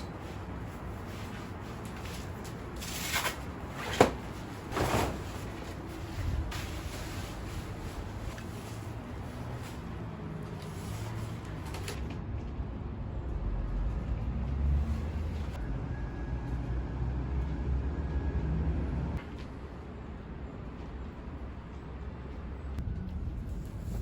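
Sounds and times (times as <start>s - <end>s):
low steady rumble: 12.0s - 24.0s.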